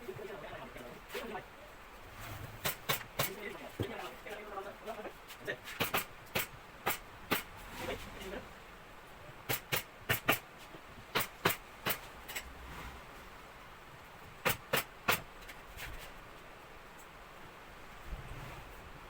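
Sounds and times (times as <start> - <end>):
staple gun firing: 9.5 - 10.4.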